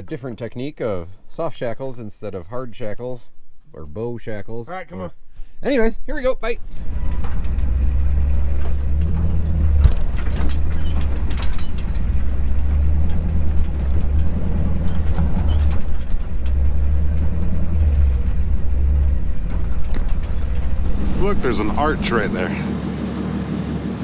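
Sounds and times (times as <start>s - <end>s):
vehicle engine rumble: 6.4s - 24.0s
loose gear rattling: 6.6s - 22.3s.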